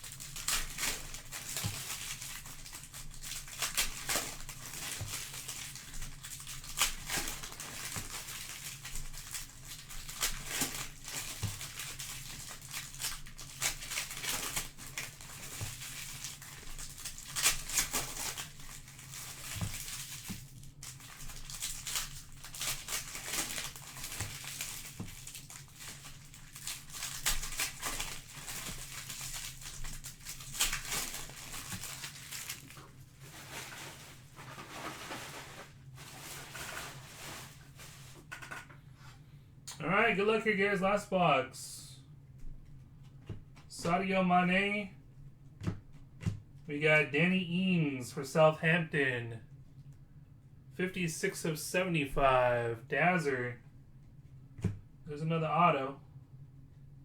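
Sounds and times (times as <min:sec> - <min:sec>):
plastic and foil wrapping crinkling: 0:00.0 - 0:38.5.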